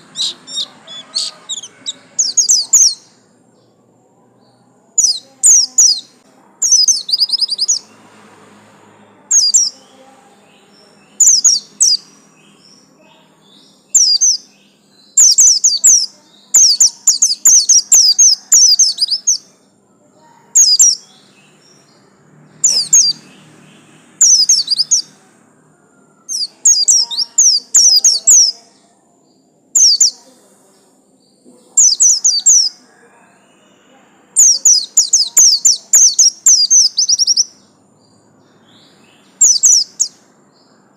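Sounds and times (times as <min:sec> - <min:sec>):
bird chirping in quick bursts: 0:00.0 - 0:03.1, 0:05.0 - 0:07.9, 0:09.3 - 0:09.9, 0:11.2 - 0:12.7, 0:13.8 - 0:19.4, 0:22.6 - 0:25.1, 0:31.8 - 0:32.8, 0:34.4 - 0:37.6, 0:38.9 - 0:40.2.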